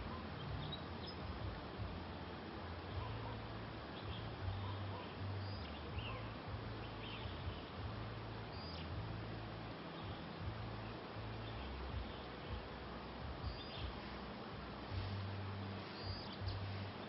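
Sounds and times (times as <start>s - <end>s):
faint bird chirps: 0.0s - 1.4s, 2.9s - 7.8s, 8.4s - 9.0s, 13.4s - 14.2s, 14.9s - 17.0s
stream rushing: 0.0s - 17.0s.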